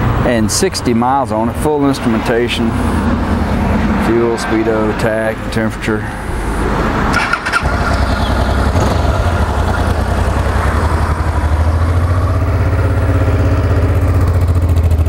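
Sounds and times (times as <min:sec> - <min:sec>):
motorcycle engine idling: 0:07.2 - 0:15.0.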